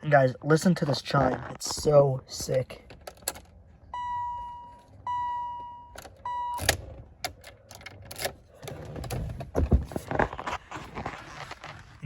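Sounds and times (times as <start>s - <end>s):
car warning chime: 3.9s - 6.9s.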